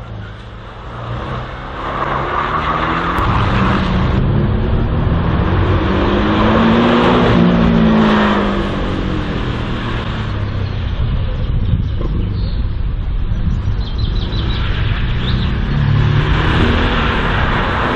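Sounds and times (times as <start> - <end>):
race car engine accelerating: 0.0 - 11.3, 14.0 - 17.9.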